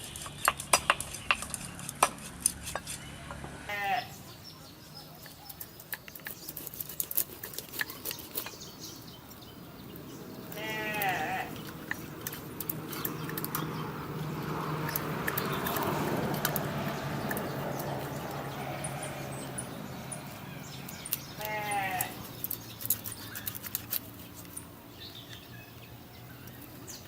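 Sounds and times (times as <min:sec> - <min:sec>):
animal bleating: 0:03.7 - 0:04.2, 0:10.5 - 0:11.6, 0:21.4 - 0:22.2
sharp clicks: 0:10.5 - 0:13.7, 0:14.7 - 0:18.4.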